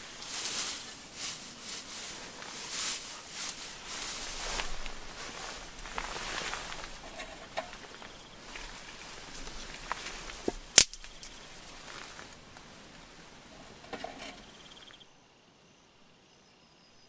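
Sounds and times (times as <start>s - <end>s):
steady hiss: 0.0s - 14.9s
sharp clicks: 10.7s - 11.4s.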